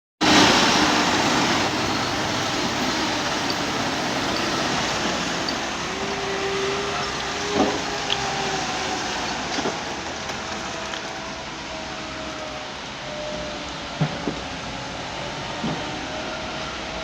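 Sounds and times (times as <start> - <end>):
heavy vehicle engine running: 0.2 - 13.0.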